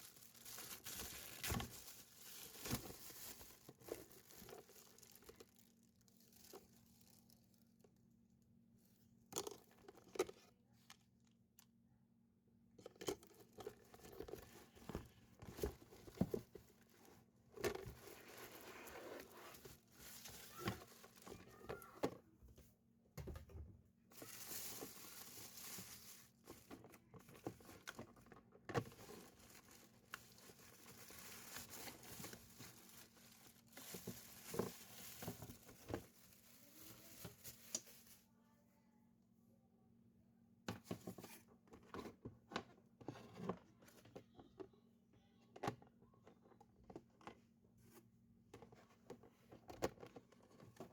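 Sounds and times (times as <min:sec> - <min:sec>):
packaging rustling and tearing: 0:00.0 - 0:07.5, 0:17.6 - 0:21.8, 0:24.1 - 0:38.2.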